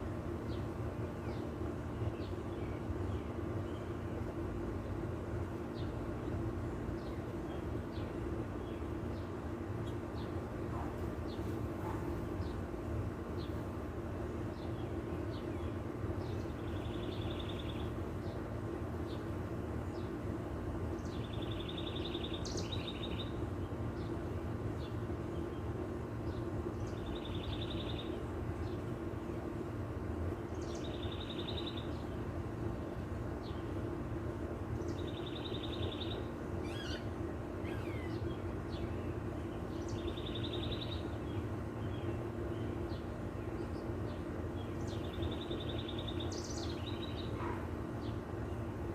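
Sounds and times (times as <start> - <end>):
birds chirping: 0.0 - 48.9
low background hum: 0.0 - 48.9
bird trilling: 35.2 - 38.3.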